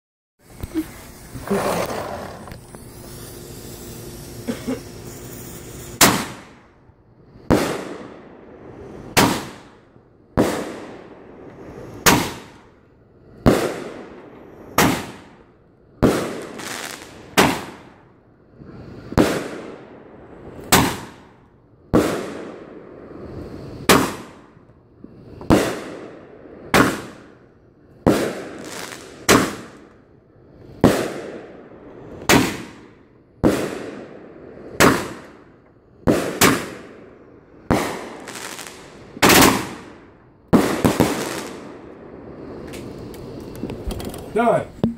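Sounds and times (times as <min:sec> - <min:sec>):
fireworks bangs with echo: 0:06.0 - 0:06.7, 0:07.4 - 0:11.4, 0:12.0 - 0:12.7, 0:13.4 - 0:18.0, 0:19.1 - 0:23.0, 0:23.8 - 0:24.6, 0:25.4 - 0:27.4, 0:28.0 - 0:29.9, 0:30.8 - 0:42.3.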